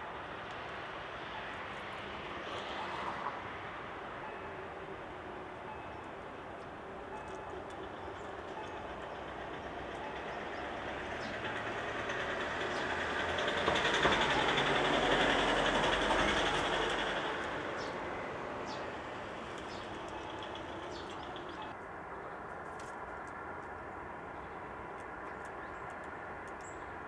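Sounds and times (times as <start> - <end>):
vehicle passing by rumbling: 10.5 - 21.7.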